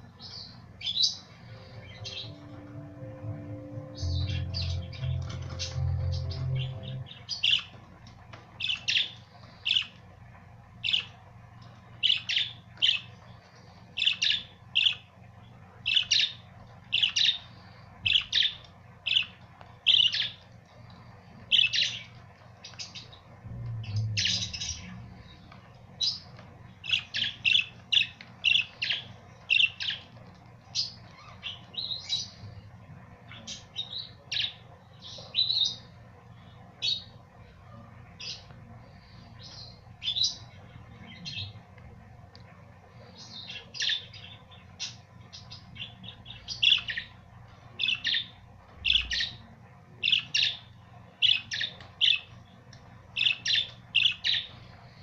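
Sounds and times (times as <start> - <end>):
budgerigars chirping: 47.8 - 49.4.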